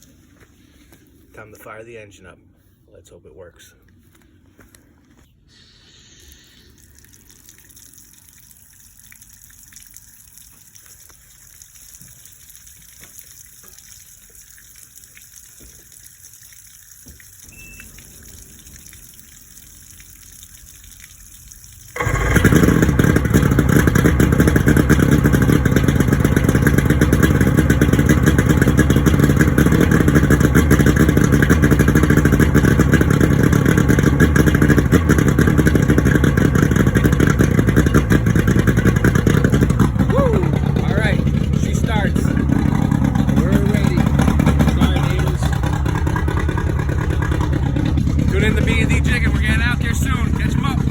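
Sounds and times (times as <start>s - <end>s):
outboard motor running: 17.1s - 50.9s.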